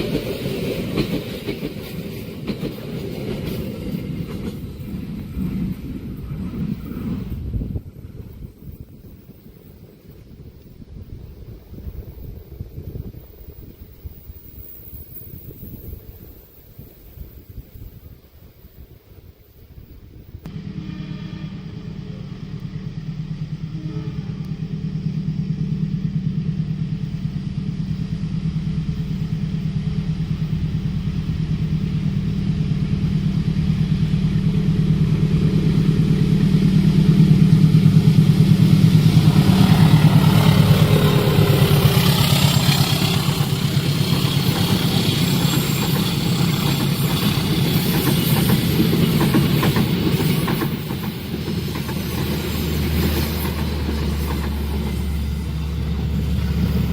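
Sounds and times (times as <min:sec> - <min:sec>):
train wheels clattering on rails: 0:00.0 - 0:07.4, 0:24.4 - 0:56.9
locomotive engine drone: 0:20.4 - 0:56.9.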